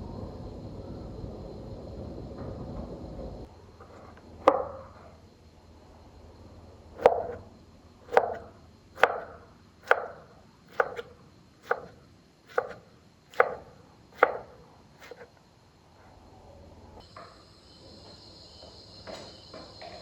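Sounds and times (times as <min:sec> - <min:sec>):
knife chopping on wooden board: 0:07.0 - 0:07.4, 0:08.1 - 0:11.9, 0:12.5 - 0:13.6, 0:14.2 - 0:15.2.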